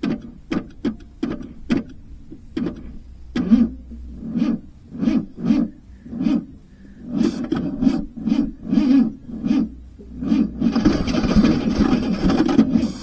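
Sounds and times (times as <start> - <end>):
engine cranking slowly: 10.7 - 13.0.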